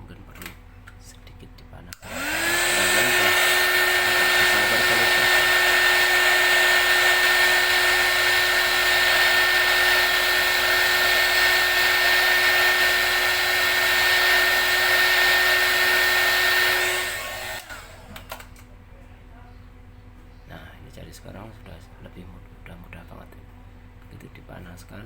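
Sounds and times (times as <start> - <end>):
hot air gun blowing with whine: 2.0 - 18.1.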